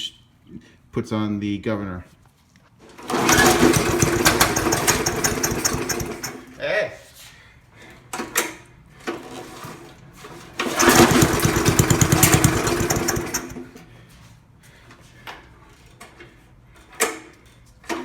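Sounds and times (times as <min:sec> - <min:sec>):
lawnmower engine pull-started: 0:02.9 - 0:06.6, 0:09.1 - 0:13.8.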